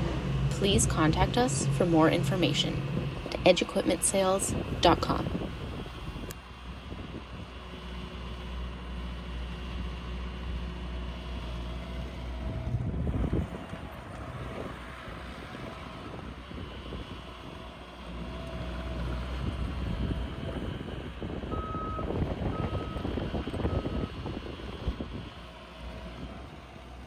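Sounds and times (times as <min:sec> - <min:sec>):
diesel engine running: 0:00.0 - 0:27.0
backup alarm beeping: 0:21.5 - 0:23.1.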